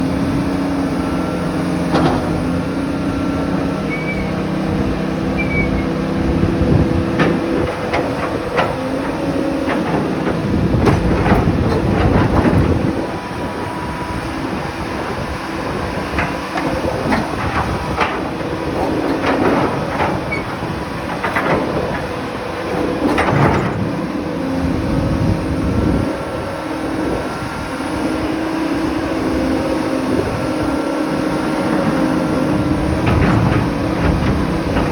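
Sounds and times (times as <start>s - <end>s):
excavator engine and hydraulics: 0.0s - 34.9s
metallic clanks and knocks: 7.1s - 13.1s, 16.1s - 24.2s, 31.6s - 34.9s.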